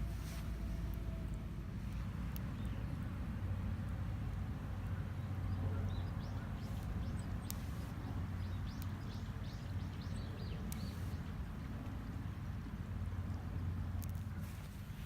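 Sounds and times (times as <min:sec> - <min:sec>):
small birds chirping: 0:01.9 - 0:12.7.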